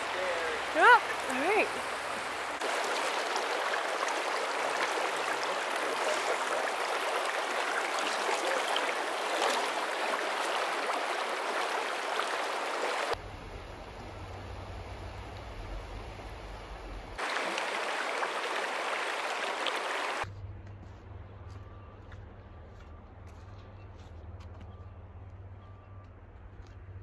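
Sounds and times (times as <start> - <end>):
stream water rushing: 0.0 - 13.2, 17.2 - 20.2.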